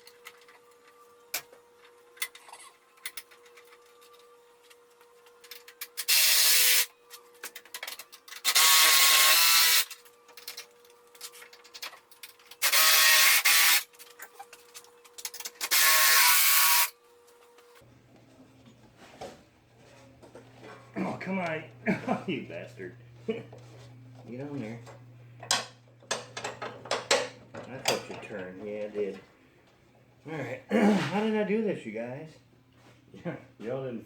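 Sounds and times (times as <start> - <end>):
power drill running: 8.4 - 9.9
handling clicks and knocks: 25.4 - 29.2.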